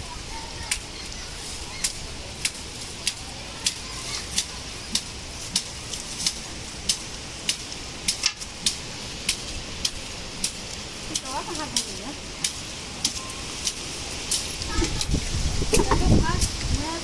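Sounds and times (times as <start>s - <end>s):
rain and storm wind hiss: 0.0s - 17.0s.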